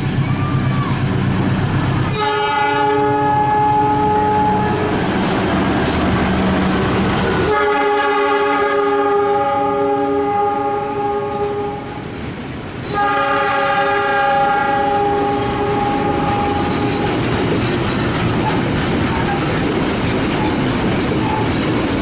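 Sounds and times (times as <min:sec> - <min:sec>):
low diesel engine rumble: 0:00.0 - 0:07.7
locomotive air horn blasts: 0:02.1 - 0:05.0, 0:07.4 - 0:12.0, 0:12.9 - 0:16.9
train wheels rattling: 0:03.9 - 0:08.3, 0:14.7 - 0:22.0.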